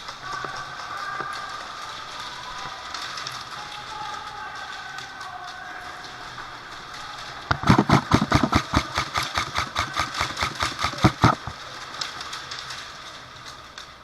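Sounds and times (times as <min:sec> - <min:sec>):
airsoft gun automatic fire: 0:07.5 - 0:11.6.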